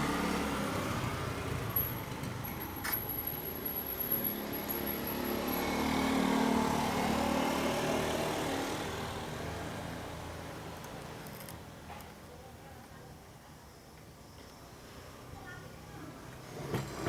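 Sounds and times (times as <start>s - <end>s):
motor vehicle passing: 0.0s - 11.5s.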